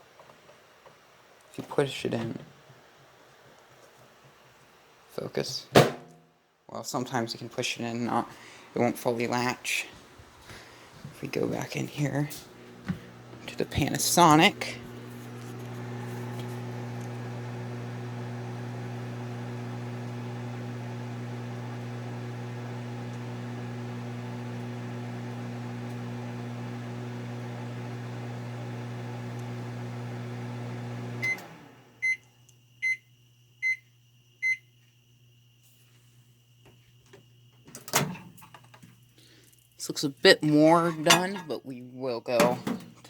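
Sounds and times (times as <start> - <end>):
microwave oven humming: 12.5 - 34.8.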